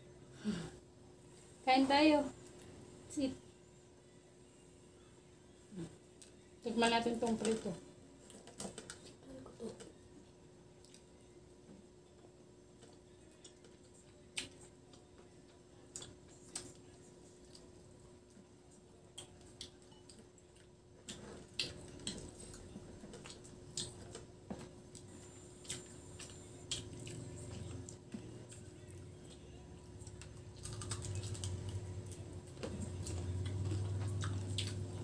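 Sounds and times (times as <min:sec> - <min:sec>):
faint steady hum: 0:00.0 - 0:35.0
chewing mouth clicks and smacks: 0:19.1 - 0:24.2, 0:30.2 - 0:32.2, 0:33.0 - 0:34.9.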